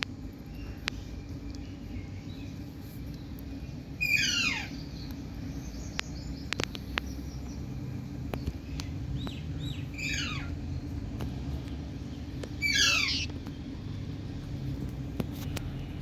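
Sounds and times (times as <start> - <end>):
steady low rumble: 0.0 - 16.0
parrot screeching calls: 4.0 - 4.8, 10.0 - 10.6, 12.6 - 13.3
parrot soft chirps: 4.0 - 5.1, 9.2 - 10.6, 12.6 - 13.4.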